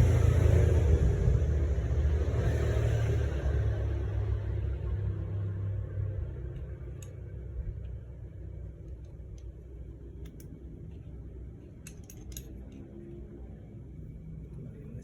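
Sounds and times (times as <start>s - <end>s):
low steady rumble: 0.0s - 15.0s
metallic clicks of hand tools: 6.6s - 7.2s, 10.2s - 10.6s, 11.6s - 12.9s.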